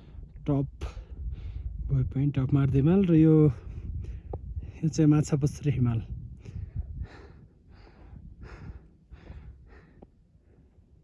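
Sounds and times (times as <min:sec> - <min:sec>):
steady low rumble: 0:00.0 - 0:11.0
person breathing hard: 0:06.4 - 0:11.0.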